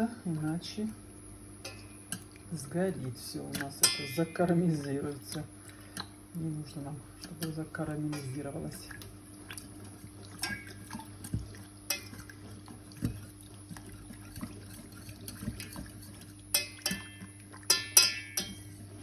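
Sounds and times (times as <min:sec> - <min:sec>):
spoon scraping and knocking pot: 0:14.1 - 0:18.7
spoon clinking: 0:16.5 - 0:18.6.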